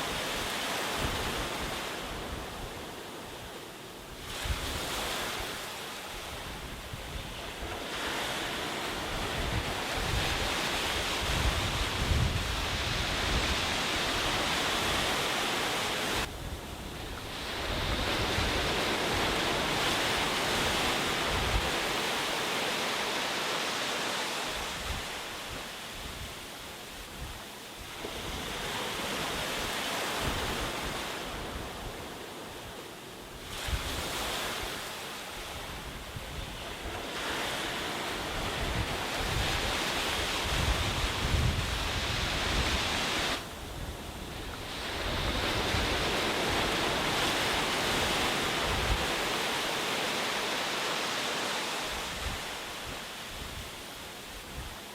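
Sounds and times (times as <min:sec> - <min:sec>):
sea waves breaking on a beach: 0:00.0 - 0:54.9
wind buffeting microphone: 0:06.3 - 0:22.0, 0:35.5 - 0:49.8.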